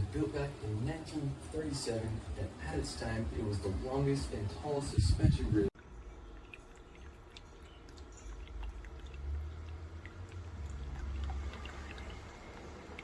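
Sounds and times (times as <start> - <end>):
fountain water trickling: 5.8 - 13.0.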